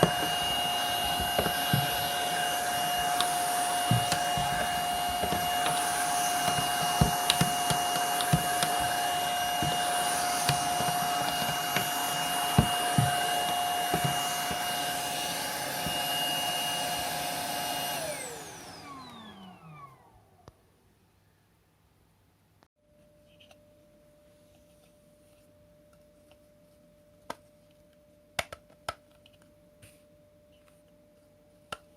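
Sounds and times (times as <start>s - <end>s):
stick vacuum whining: 0.0s - 20.2s.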